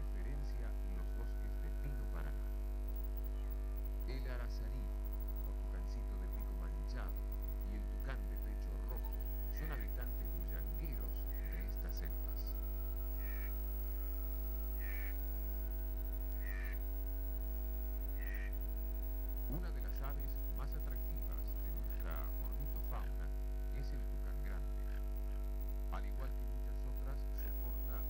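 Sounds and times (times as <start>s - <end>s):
steady electrical hum: 0.0s - 28.0s
bird call: 3.2s - 16.9s, 17.9s - 18.7s.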